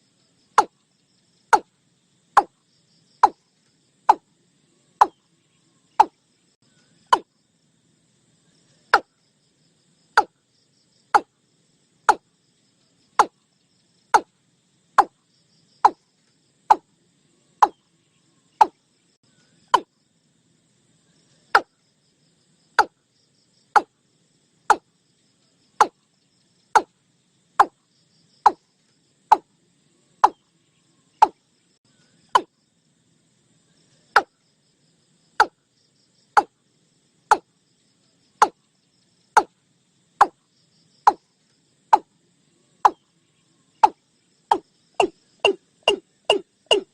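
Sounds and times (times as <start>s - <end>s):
faint insects trilling: 0.0s - 46.9s
watercock calling: 43.8s - 46.9s.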